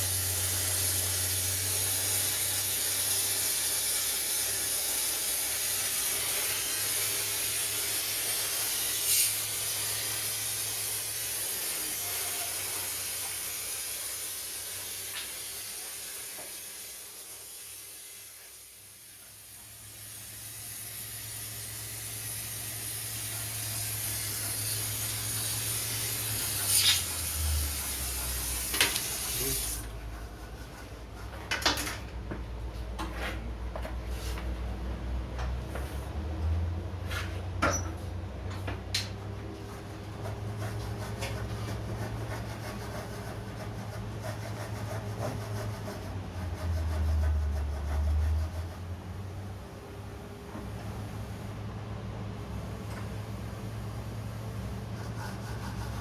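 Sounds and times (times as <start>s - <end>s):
gas torch hissing: 19.8s - 29.9s.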